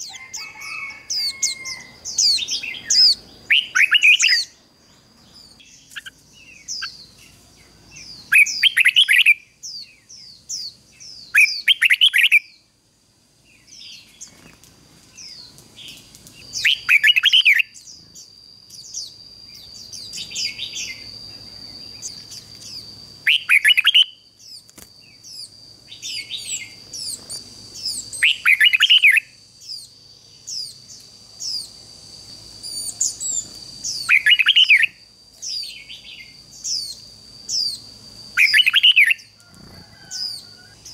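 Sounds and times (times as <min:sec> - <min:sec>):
bird singing warbled phrases: 0:00.0 - 0:12.7, 0:15.2 - 0:31.8, 0:32.6 - 0:39.4
soft high bird chirps: 0:00.0 - 0:12.7, 0:13.5 - 0:40.9
thin high whine: 0:15.1 - 0:40.9.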